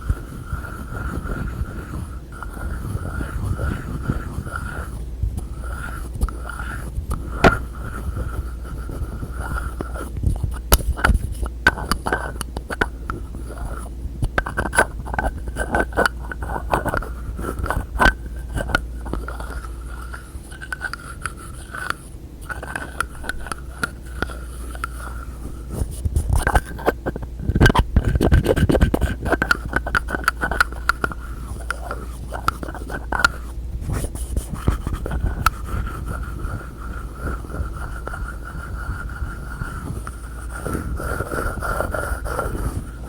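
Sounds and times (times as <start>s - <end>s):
scratchy rubbing: 0.0s - 43.0s
fingers tapping on containers: 9.5s - 25.1s, 26.0s - 33.4s.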